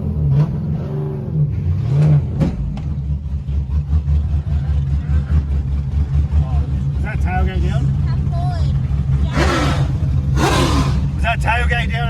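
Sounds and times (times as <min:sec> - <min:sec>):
car engine running: 0:03.2 - 0:12.0.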